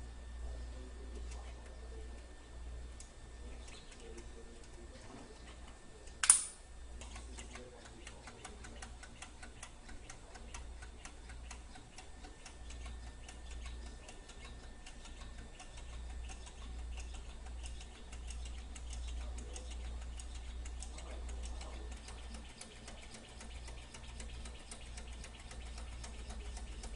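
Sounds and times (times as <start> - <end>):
sharp loud click: 6.2 - 6.6
engine mechanism ticking: 7.0 - 26.9.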